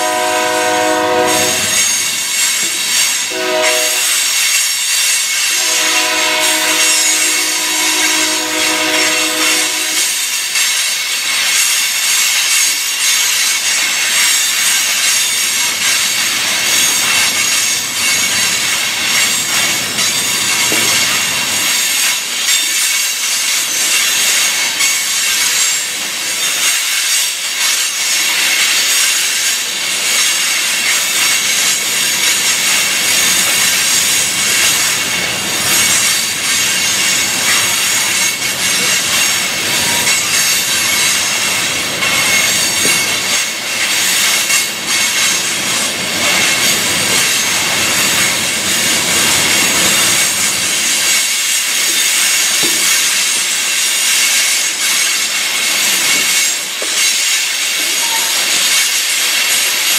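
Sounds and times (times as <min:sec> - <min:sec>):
high-pitched wheel squeal: 0:00.0 - 0:10.6
train wheels rattling on rails: 0:00.0 - 0:59.9.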